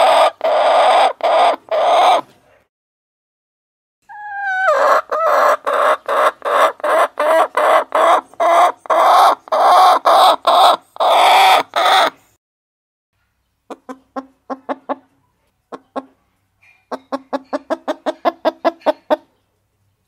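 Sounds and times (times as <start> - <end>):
hen squawking and clucking: 0.0 - 2.3, 4.0 - 12.2, 13.7 - 16.2, 16.8 - 19.4.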